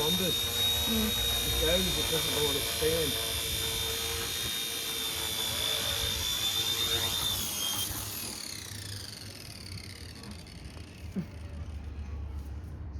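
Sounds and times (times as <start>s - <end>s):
model helicopter rotor whining: 0.0s - 11.9s.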